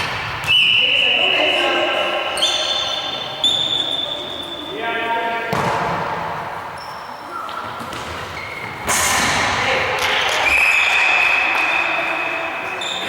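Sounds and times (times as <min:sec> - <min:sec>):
players' voices: 0:00.1 - 0:13.0
ball bouncing and thudding: 0:05.5 - 0:06.3, 0:07.6 - 0:10.4.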